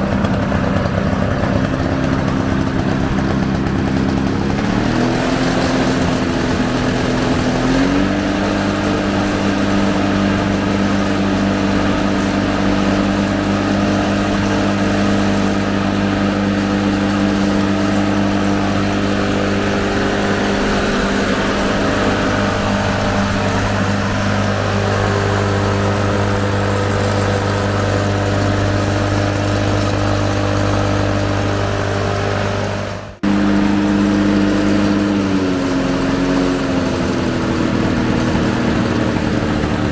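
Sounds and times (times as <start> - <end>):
push mower engine running: 0.0 - 39.9.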